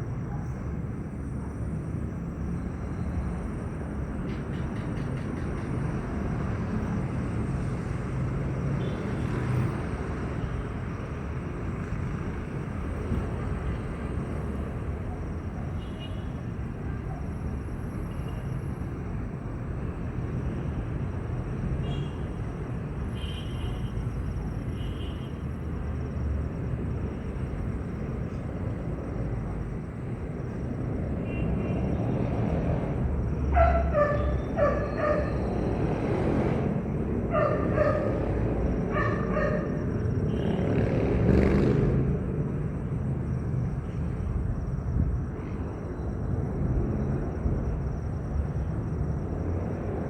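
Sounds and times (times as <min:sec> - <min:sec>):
dog barking: 0:33.5 - 0:35.4, 0:37.3 - 0:38.2, 0:38.9 - 0:39.8.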